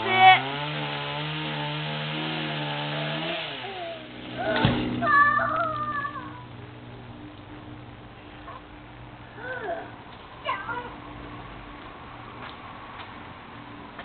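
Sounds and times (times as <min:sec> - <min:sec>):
two-stroke chainsaw running: 0:00.0 - 0:05.4
high wavering cry: 0:03.6 - 0:06.5.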